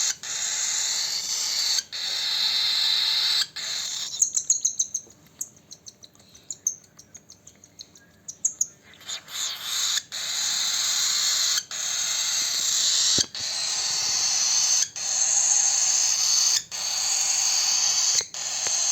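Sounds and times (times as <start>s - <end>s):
cockatiel chirping: 0.0s - 18.9s
raspy food-begging call: 9.0s - 18.9s.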